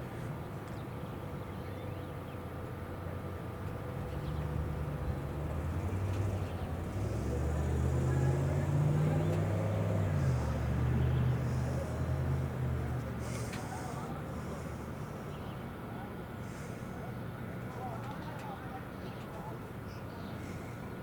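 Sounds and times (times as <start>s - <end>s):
vehicle engine humming: 2.5s - 17.9s.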